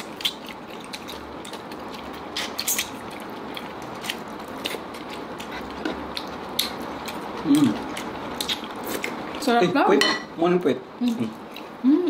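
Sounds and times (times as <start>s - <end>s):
chicken being chewed: 0.0s - 9.4s.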